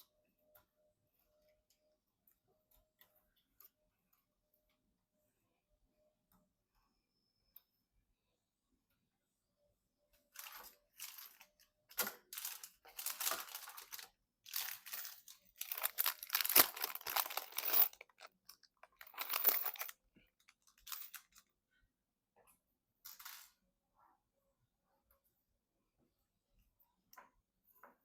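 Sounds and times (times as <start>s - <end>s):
plastic crinkling and rustling: 12.0s - 21.4s.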